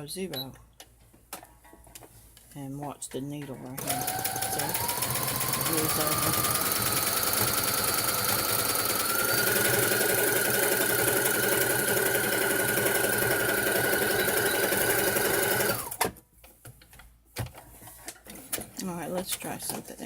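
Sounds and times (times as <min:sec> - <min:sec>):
sewing machine motor whining: 0:03.8 - 0:16.0.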